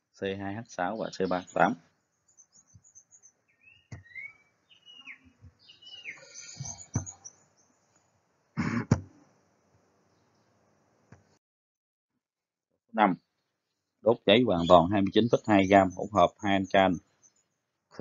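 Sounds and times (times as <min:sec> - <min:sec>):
small birds chirping: 0:00.2 - 0:08.2, 0:13.0 - 0:18.0.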